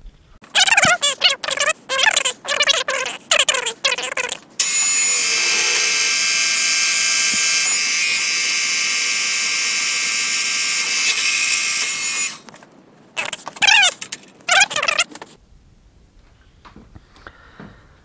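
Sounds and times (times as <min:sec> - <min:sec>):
squeaky chirps: 0:00.4 - 0:06.0, 0:13.2 - 0:15.1
milling machine drilling steel: 0:04.6 - 0:12.4.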